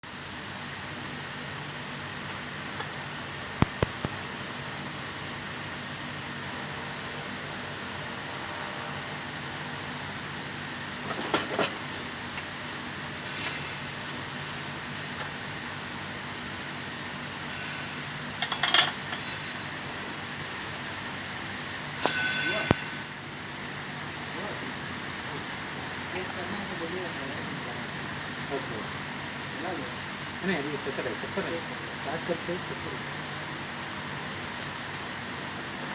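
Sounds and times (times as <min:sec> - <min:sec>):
steady mechanical hum: 0:00.0 - 0:35.9
tools clinking on metal: 0:18.4 - 0:19.5.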